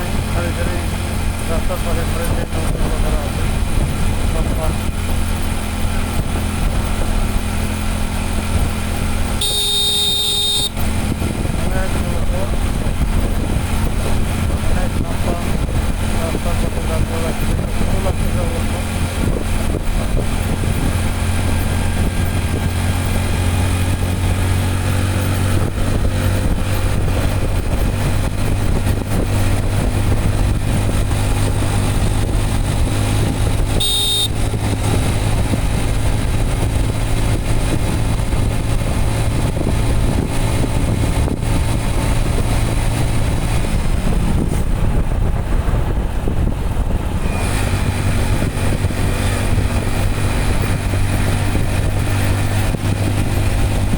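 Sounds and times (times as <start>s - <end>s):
motorcycle engine running: 0.0s - 53.9s
rushing wind noise: 0.0s - 53.9s
short high-pitched tone: 9.4s - 10.7s, 33.8s - 34.4s.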